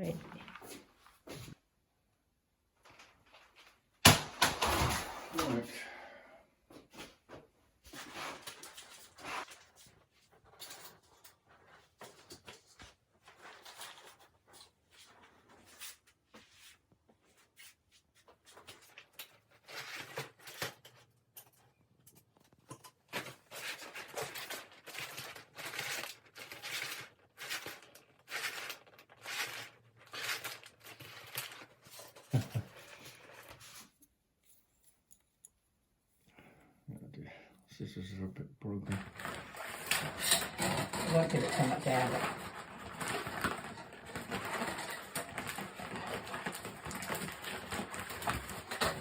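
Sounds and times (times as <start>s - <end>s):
rustling: 22.3s - 36.4s, 38.9s - 49.0s
scraping: 38.9s - 49.0s.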